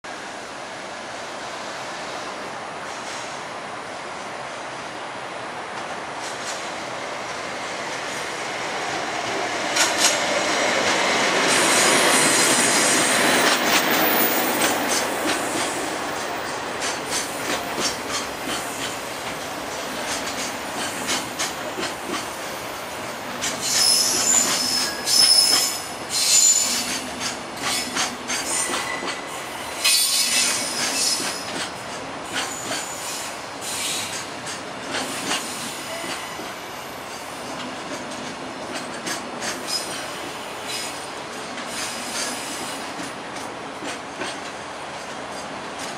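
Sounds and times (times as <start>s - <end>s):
electric locomotive passing: 0.1s - 45.9s
train wheels clacking over rail joints: 9.2s - 22.6s, 23.2s - 45.9s
high wheel squeals: 23.6s - 26.9s.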